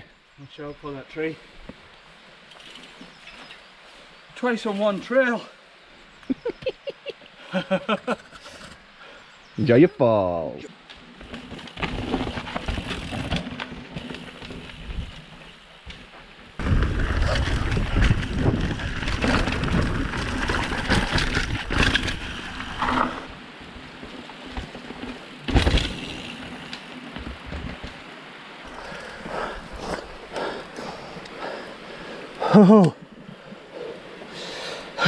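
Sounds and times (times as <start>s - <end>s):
bike tyres and frame rattling: 1.7s - 3.7s, 10.9s - 35.0s.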